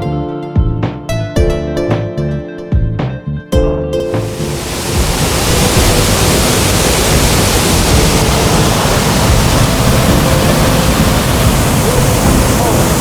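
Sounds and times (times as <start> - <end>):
waterfall roaring: 4.2 - 13.0.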